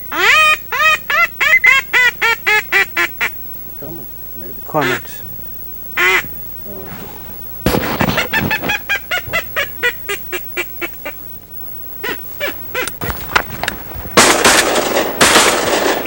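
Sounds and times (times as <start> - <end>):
duck calls honking: 0.0 - 5.4, 6.0 - 11.4, 12.0 - 16.0
loud burst of noise: 5.8 - 12.3, 12.9 - 16.0.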